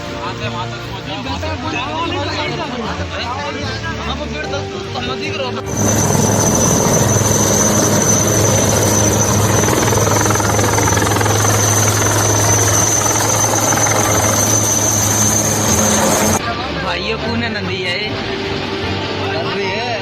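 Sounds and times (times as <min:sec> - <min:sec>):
helicopter engine and rotor: 0:05.6 - 0:16.4
high turbine whine: 0:05.6 - 0:16.4.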